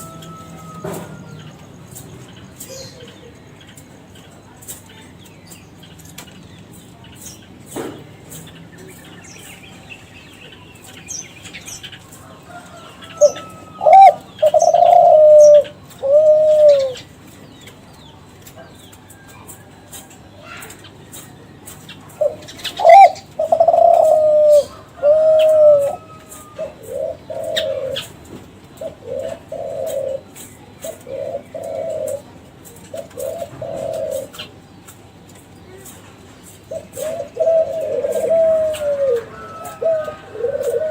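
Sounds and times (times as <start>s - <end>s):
dove cooing: 0.0s - 3.4s, 12.0s - 17.2s, 22.1s - 34.6s, 36.6s - 40.9s
small birds chirping: 0.0s - 40.9s.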